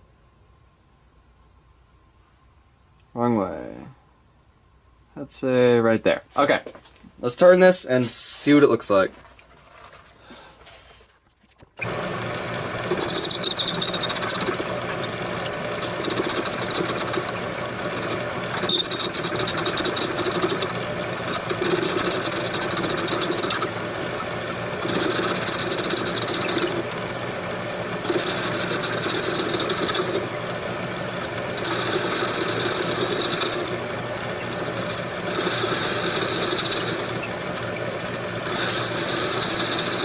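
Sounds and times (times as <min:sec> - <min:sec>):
lathe motor hum: 0:11.8 - 0:40.0
lathe tool cutting metal: 0:11.8 - 0:40.0.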